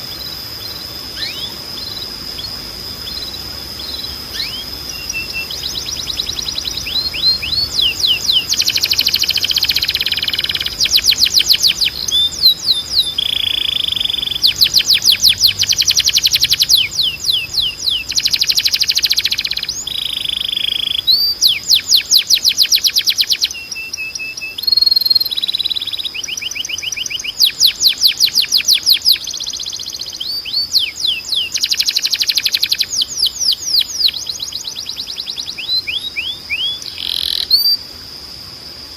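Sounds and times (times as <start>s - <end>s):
steady high tone: 0.0s - 21.6s
canary singing rolling trills: 0.0s - 37.9s.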